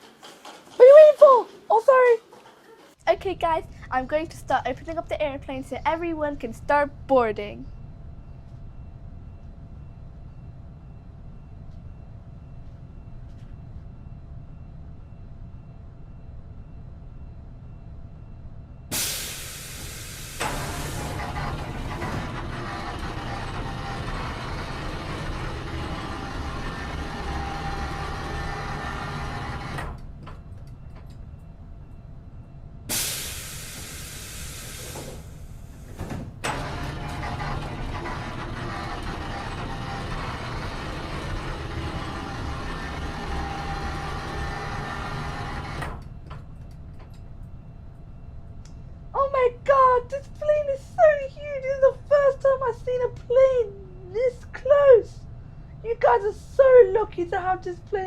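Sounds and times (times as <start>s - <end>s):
mechanical whirring hum: 0.0s - 58.0s
air hiss: 18.9s - 21.2s, 32.9s - 36.0s.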